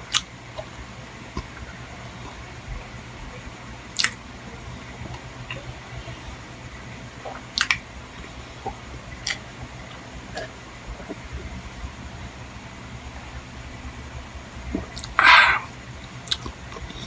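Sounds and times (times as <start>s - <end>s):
steady low hum: 0.0s - 17.0s
mouth smacking clicks: 4.0s - 4.2s, 7.3s - 7.8s, 8.6s - 9.5s, 14.7s - 17.0s
person chewing: 4.0s - 5.7s, 14.7s - 17.0s.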